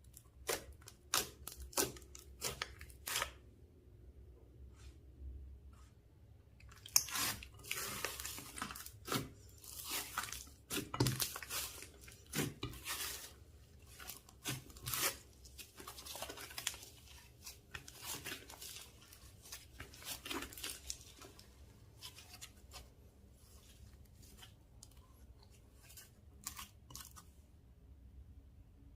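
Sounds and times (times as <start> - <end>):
slime squished by hand: 6.6 - 22.9.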